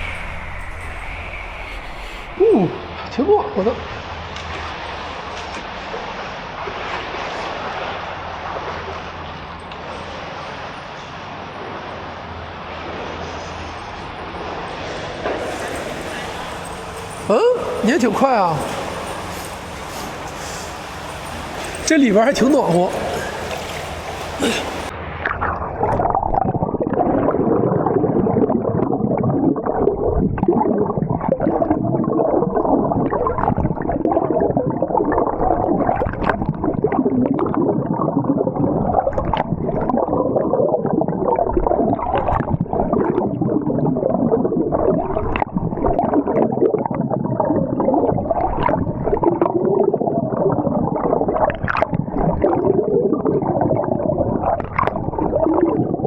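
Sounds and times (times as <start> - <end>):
underwater churning and gurgling: 23.2 - 56.0.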